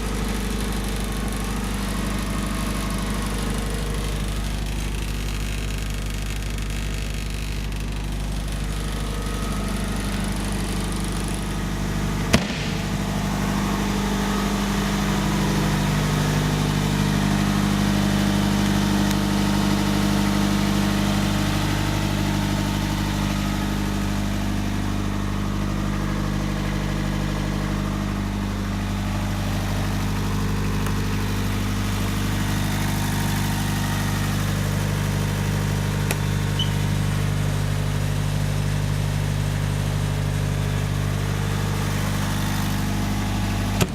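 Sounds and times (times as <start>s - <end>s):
engine idling: 0.0s - 43.9s
sharp knock: 12.3s - 13.1s.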